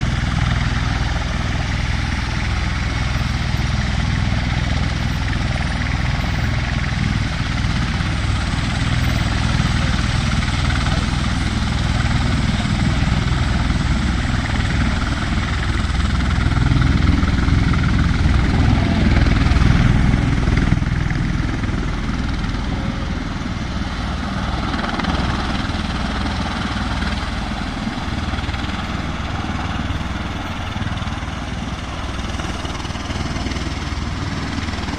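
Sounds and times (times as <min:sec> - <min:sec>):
helicopter rotor rumble: 0:00.0 - 0:34.9.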